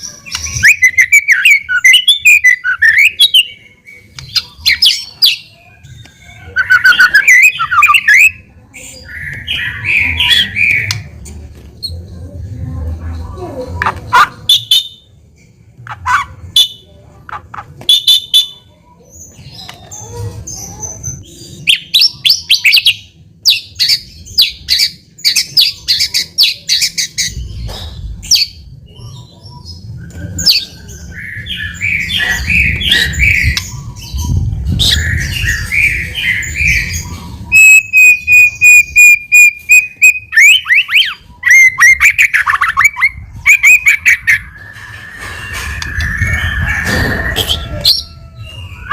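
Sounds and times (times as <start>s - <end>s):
songbird singing varied song: 20.6s - 46.9s.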